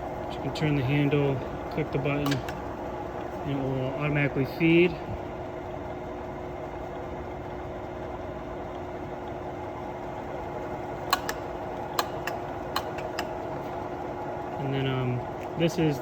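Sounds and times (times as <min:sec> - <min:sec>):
drill press humming: 0:00.0 - 0:05.6, 0:06.5 - 0:14.4
sharp clicks: 0:11.1 - 0:13.3.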